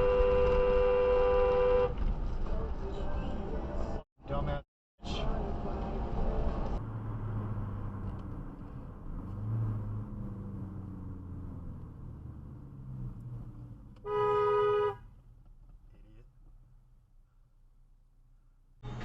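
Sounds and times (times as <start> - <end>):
car horn: 0.0 - 2.0, 14.0 - 15.1
car engine and road noise: 0.0 - 19.0.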